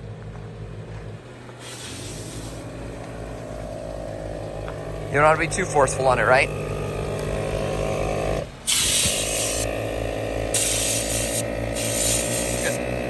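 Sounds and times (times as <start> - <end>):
compressed air hissing blasts: 1.6 - 2.7, 8.6 - 9.8, 10.5 - 13.0
air compressor pulsing: 1.6 - 13.0.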